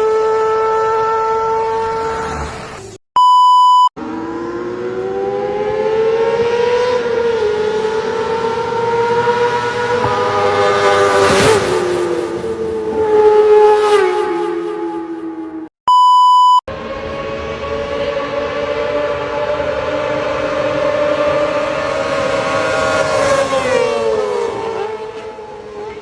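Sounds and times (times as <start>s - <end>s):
motorcycle engine passing at high revs: 0.0s - 2.8s, 4.0s - 15.6s, 16.8s - 26.0s
short electronic beep: 3.2s - 3.9s, 15.9s - 16.7s.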